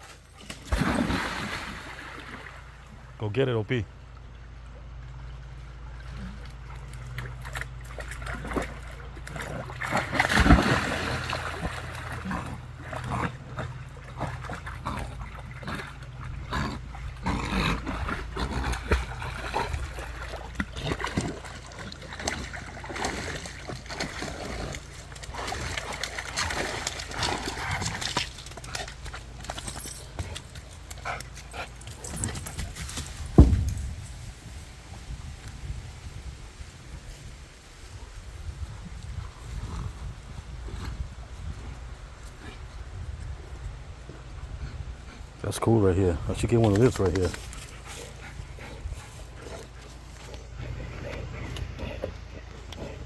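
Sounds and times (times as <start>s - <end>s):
dog splashing through water: 0.1s - 2.7s, 5.1s - 33.7s.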